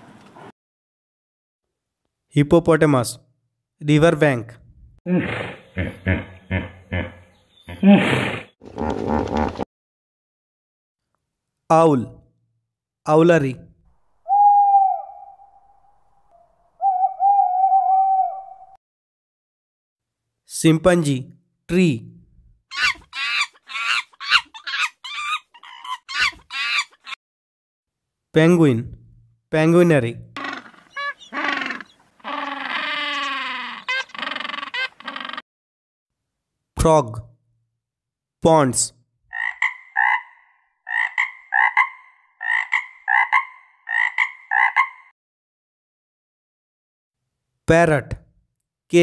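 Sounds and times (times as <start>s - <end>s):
chimpanzee shrill calls: 22.7s - 27.2s, 30.4s - 35.4s
frog croaking: 30.4s - 35.4s, 39.3s - 45.1s.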